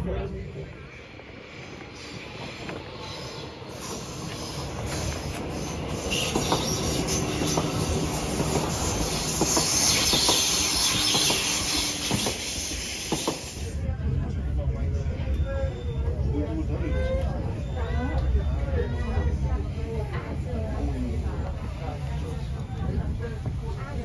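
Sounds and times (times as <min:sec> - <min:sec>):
electric train passing: 0:00.0 - 0:13.8
steel wheels hissing on rails: 0:00.6 - 0:13.8.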